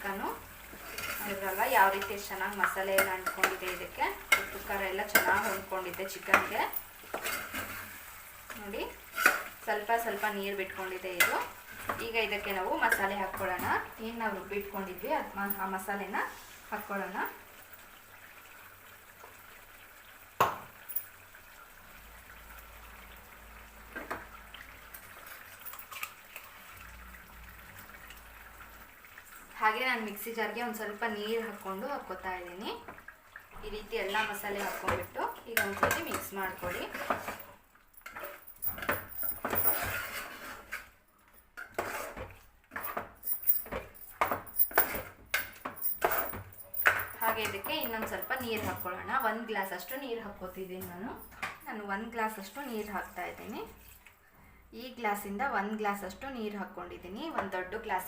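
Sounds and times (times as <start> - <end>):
soft steady bubbling: 0.0 - 43.2, 46.4 - 54.9
spoon scraping a pot: 0.7 - 8.1, 9.0 - 10.3, 34.0 - 41.0, 41.6 - 43.1.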